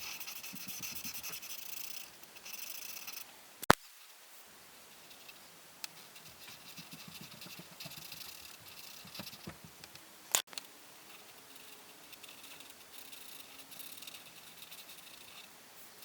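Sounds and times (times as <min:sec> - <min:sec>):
coloring strokes scratching paper: 0:00.0 - 0:03.2, 0:04.9 - 0:05.4, 0:06.0 - 0:09.8, 0:11.0 - 0:16.0.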